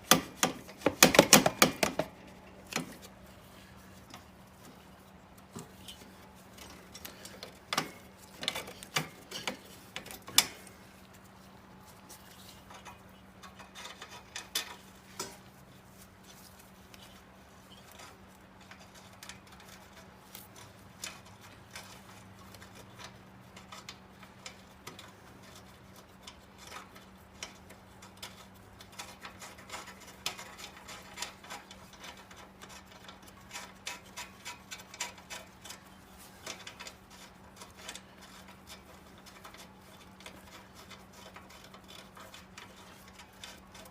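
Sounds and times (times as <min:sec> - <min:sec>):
metal parts clicking and knocking: 0:17.8 - 0:43.9.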